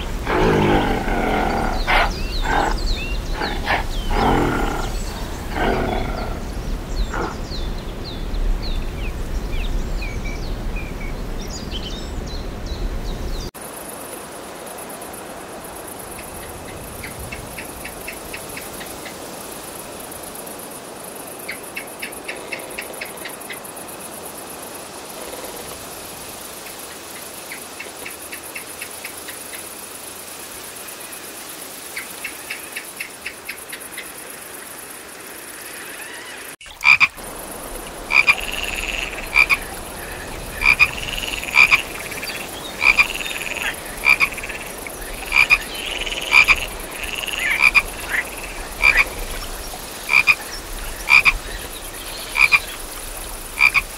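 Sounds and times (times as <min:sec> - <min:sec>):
frog croaking: 0:00.0 - 0:07.6, 0:35.5 - 0:52.9, 0:53.5 - 0:53.9
steady high hiss: 0:00.0 - 0:10.4, 0:13.6 - 0:53.9.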